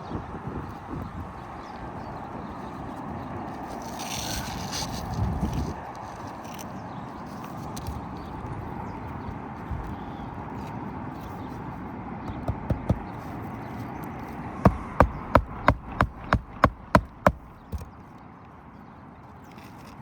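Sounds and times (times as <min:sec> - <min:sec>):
hammer striking roofing nails: 0:12.3 - 0:13.2, 0:14.7 - 0:17.9.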